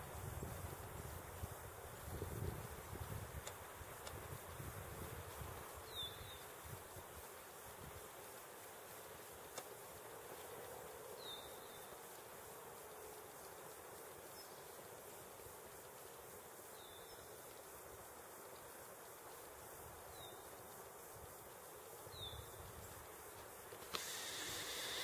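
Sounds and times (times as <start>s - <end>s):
outdoor hiss: 0.0s - 25.0s.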